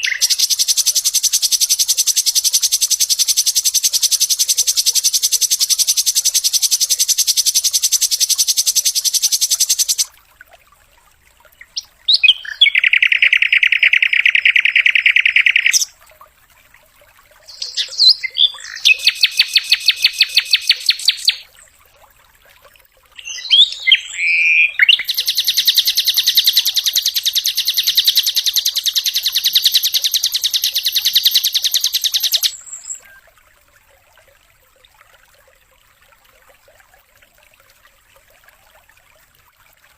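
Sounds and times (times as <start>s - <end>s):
bird call notes: 0.0s - 10.1s, 23.2s - 33.2s
flycatcher singing rapid trills: 0.0s - 10.1s, 23.2s - 33.0s.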